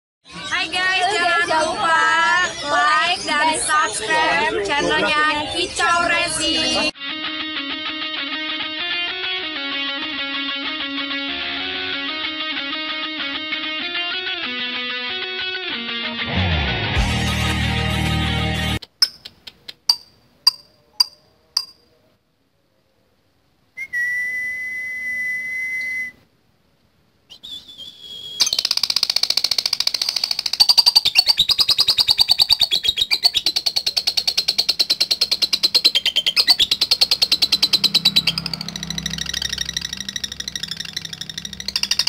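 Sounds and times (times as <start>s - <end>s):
lovebird chattering trill: 19.0s - 21.8s, 28.1s - 42.0s
sharp bird chirps: 19.0s - 21.9s, 27.3s - 42.0s
whistle-like tone: 23.8s - 26.2s, 27.3s - 28.6s.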